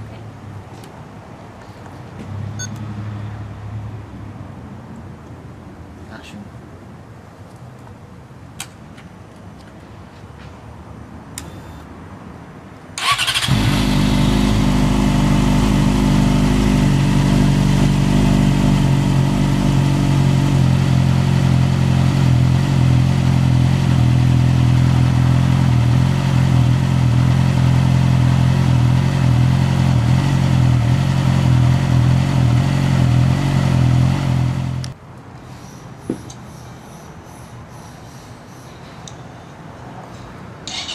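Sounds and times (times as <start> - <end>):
motorcycle engine starting and idling: 13.0 - 35.0, 40.7 - 40.9.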